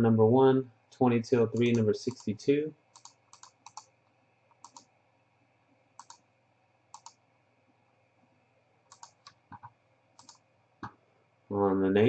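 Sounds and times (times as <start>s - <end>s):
computer mouse clicks: 1.5s - 4.9s, 6.0s - 6.3s, 6.9s - 7.2s, 8.9s - 11.0s.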